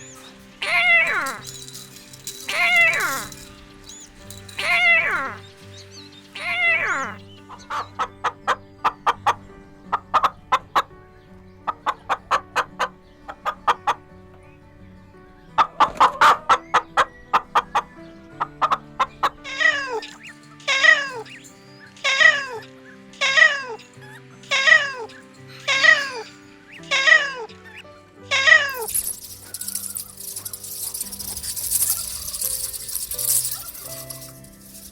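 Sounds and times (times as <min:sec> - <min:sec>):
soft background music: 0:00.0 - 0:34.9
kitten meowing: 0:00.6 - 0:01.4, 0:04.6 - 0:05.4, 0:06.4 - 0:07.2, 0:25.7 - 0:27.5, 0:28.3 - 0:29.2.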